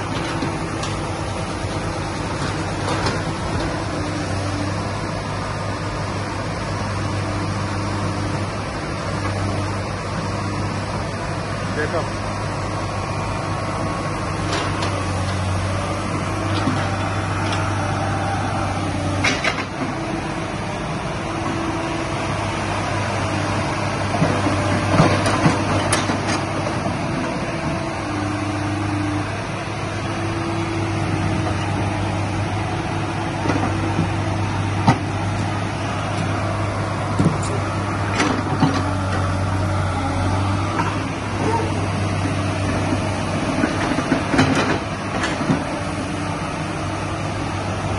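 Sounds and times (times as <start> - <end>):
diesel engine running: 0.0 - 47.9
hydraulic whine: 12.6 - 47.7
knocks and clanks: 19.2 - 19.9, 24.2 - 27.0, 37.1 - 39.2, 42.6 - 45.7.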